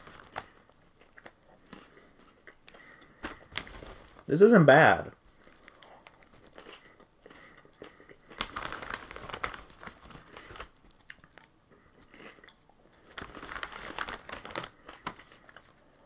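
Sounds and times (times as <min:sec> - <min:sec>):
snack bag crinkling: 0:00.0 - 0:04.3, 0:05.2 - 0:16.0
popcorn crunching close up: 0:05.4 - 0:16.0.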